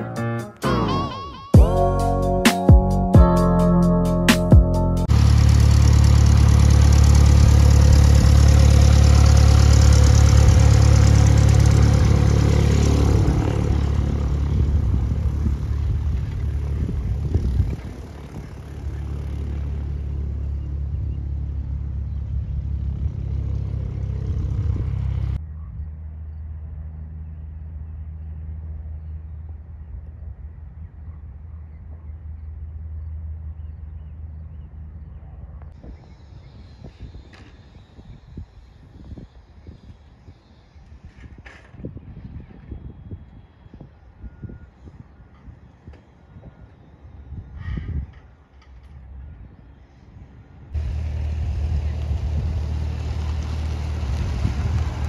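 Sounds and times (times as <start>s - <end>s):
steady low rumble: 1.6s - 23.3s, 50.8s - 55.0s
light aircraft engine and propeller: 5.0s - 55.0s.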